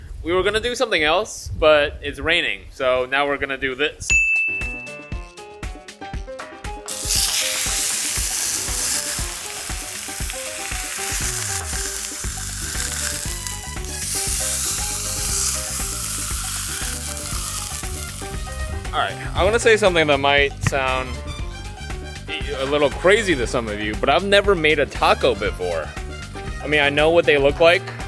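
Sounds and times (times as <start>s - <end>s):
background music with steady beat: 4.1s - 28.0s
food sizzling in a pan: 6.9s - 19.9s.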